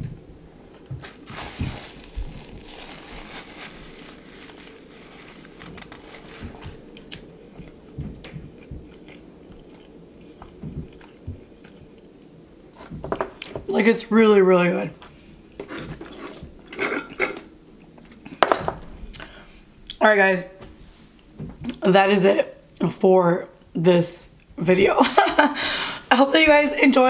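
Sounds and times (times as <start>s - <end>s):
person chewing crunchy food: 1.0s - 12.1s.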